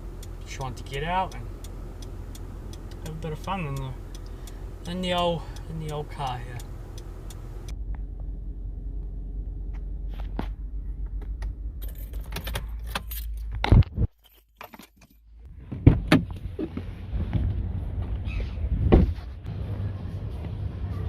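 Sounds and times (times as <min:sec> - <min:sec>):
car engine rumbling: 0:00.0 - 0:21.0
metallic jangling and clicks: 0:11.8 - 0:13.6.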